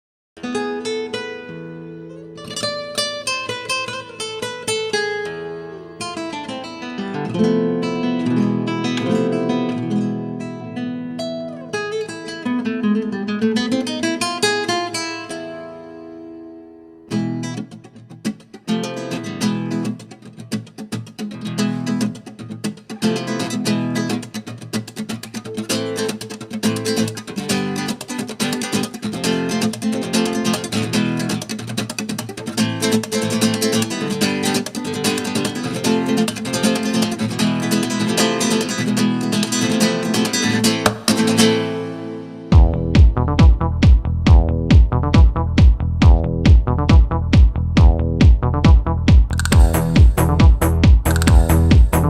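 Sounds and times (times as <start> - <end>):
flamenco acoustic guitar: 0.4 - 52.0
electronic track with heavy beat: 42.5 - 52.0.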